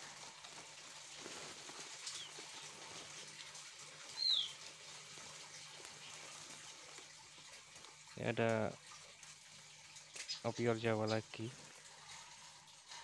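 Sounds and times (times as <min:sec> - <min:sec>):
birds fluttering: 0:00.0 - 0:13.0
bird chirps: 0:04.2 - 0:04.6.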